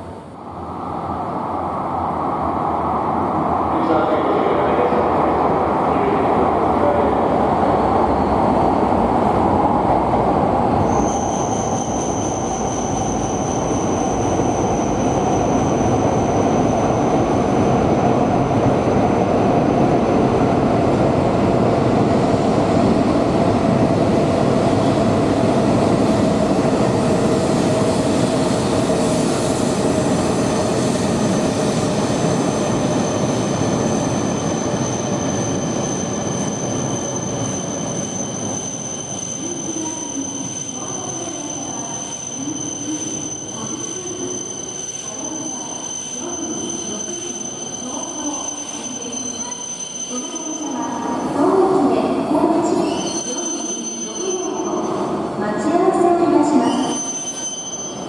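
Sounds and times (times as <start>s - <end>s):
high steady squeal: 10.8s - 17.4s, 32.5s - 51.4s.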